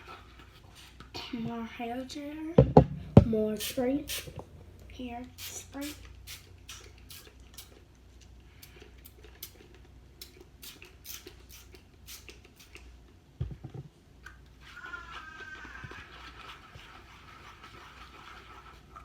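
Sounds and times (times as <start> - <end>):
dull bump: 2.6 - 3.4.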